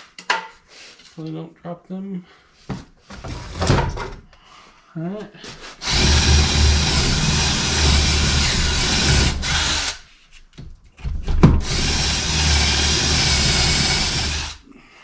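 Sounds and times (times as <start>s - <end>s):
power drill boring into wood: 5.8s - 10.0s, 11.5s - 14.6s.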